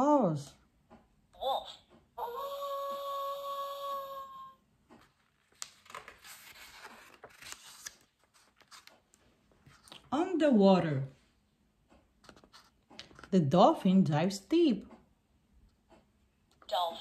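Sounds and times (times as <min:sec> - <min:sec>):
paper pages rustling: 0:04.9 - 0:10.1, 0:12.2 - 0:13.4.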